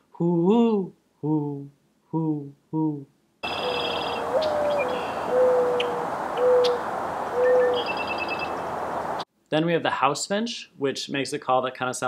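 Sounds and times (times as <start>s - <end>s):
small bird trilling chirps: 3.4s - 6.8s, 7.4s - 9.2s
dove cooing: 3.4s - 8.6s
outdoor hiss: 6.0s - 9.3s.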